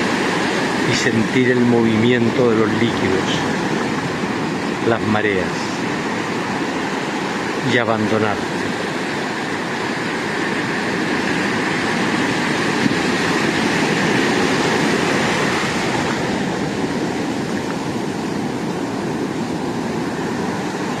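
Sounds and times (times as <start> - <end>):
sea surf washing: 0.0 - 21.0.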